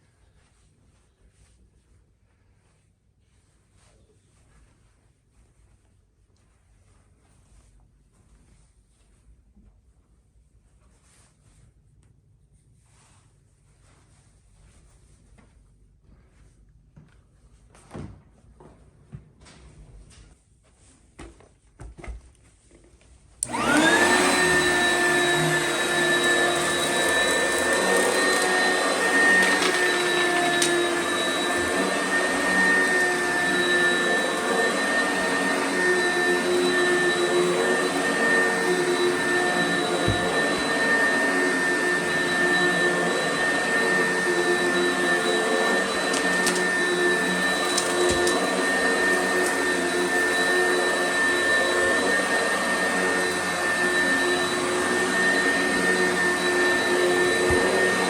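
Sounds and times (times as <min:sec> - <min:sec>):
vacuum cleaner motor whining: 0:23.4 - 0:58.0.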